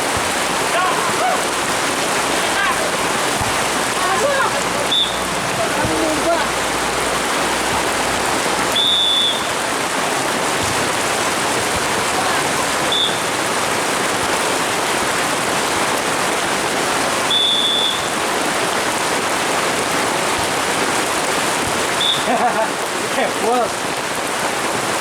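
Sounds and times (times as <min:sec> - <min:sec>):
heavy rain pouring: 0:00.0 - 0:25.0
whistle blasts: 0:04.9 - 0:05.3, 0:08.7 - 0:09.6, 0:12.9 - 0:13.3, 0:17.3 - 0:18.1, 0:22.0 - 0:22.3.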